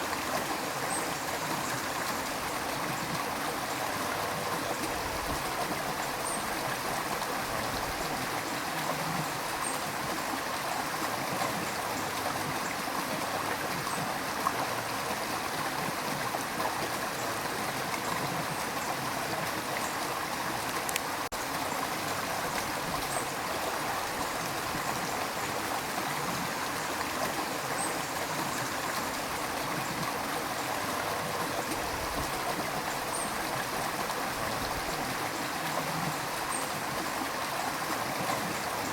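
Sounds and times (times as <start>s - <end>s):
river water rushing and gurgling: 0.0s - 38.9s.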